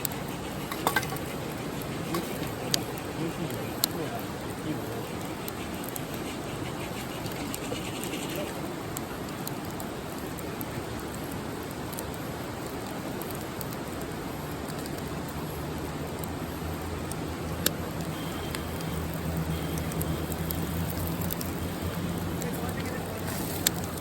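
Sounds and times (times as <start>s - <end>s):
campfire crackling: 0.0s - 24.0s
fire hissing: 0.0s - 24.0s
low steady hum: 14.2s - 24.0s.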